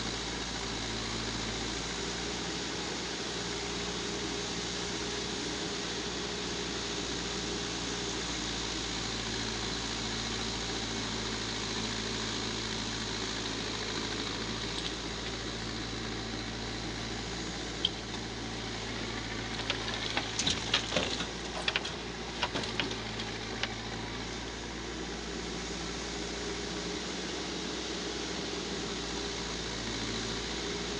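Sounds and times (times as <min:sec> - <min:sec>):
diesel engine running: 0:00.0 - 0:30.9
sharp knocks and clatters: 0:19.4 - 0:23.8.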